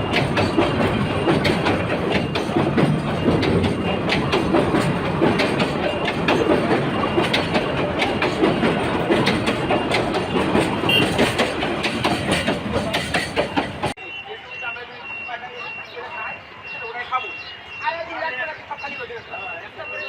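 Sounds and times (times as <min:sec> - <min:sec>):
train wheels clattering on rails: 0:00.0 - 0:14.0.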